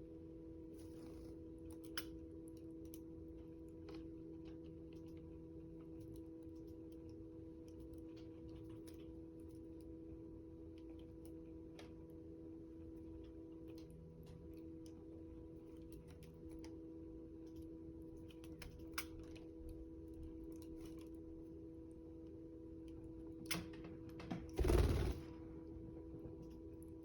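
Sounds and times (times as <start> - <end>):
low hum: 0.0 - 27.0
wing flapping: 24.3 - 25.4.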